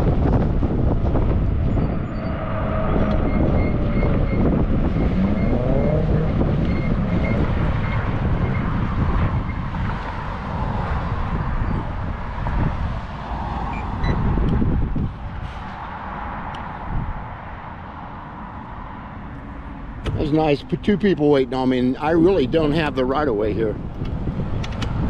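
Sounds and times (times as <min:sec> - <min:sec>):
wind buffeting microphone: 0:00.0 - 0:18.8, 0:19.6 - 0:25.0
passing road traffic: 0:00.0 - 0:25.0
vehicle tone gliding in pitch: 0:00.8 - 0:09.8.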